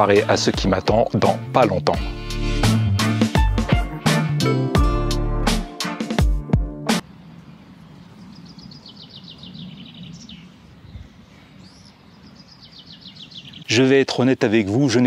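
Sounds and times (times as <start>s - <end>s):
birds chirping: 0.0s - 2.2s, 7.0s - 15.0s.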